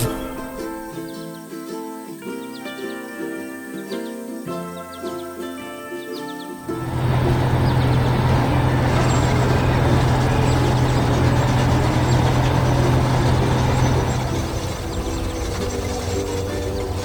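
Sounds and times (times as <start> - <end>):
heavy vehicle engine humming: 0.0 - 1.0, 6.7 - 17.0.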